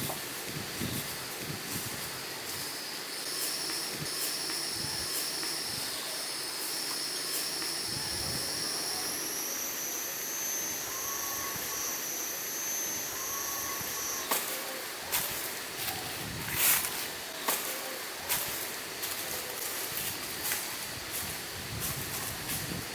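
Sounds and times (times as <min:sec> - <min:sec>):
constant hiss: 0:00.0 - 0:22.9
high-pitched insect drone: 0:00.7 - 0:22.8.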